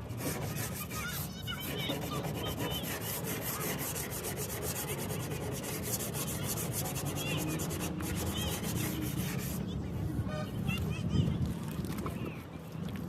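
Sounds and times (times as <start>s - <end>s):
rapid rubbing strokes: 0.0s - 9.6s.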